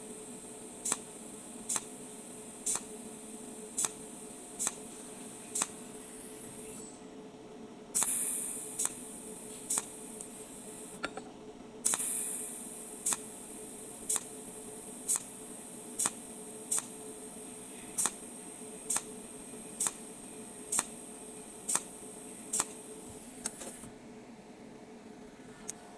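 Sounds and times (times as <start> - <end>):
welding machine hiss: 0.0 - 6.9, 8.0 - 11.0, 11.8 - 23.9
welding machine pulse ticks: 0.8 - 1.9, 2.6 - 2.9, 3.8 - 4.0, 4.6 - 4.8, 5.6 - 5.8, 8.0 - 9.0, 11.9 - 12.4, 13.0 - 13.4, 14.1 - 14.3, 15.1 - 15.4, 16.0 - 17.0, 18.0 - 18.2, 18.8 - 19.1, 19.8 - 20.1, 20.7 - 21.0, 21.7 - 22.8.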